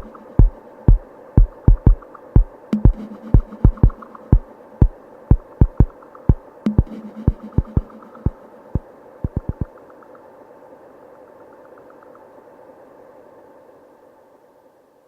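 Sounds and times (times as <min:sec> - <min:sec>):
drum machine kick hits: 0:00.0 - 0:07.9, 0:09.3 - 0:09.7
faint ticking: 0:00.0 - 0:10.2.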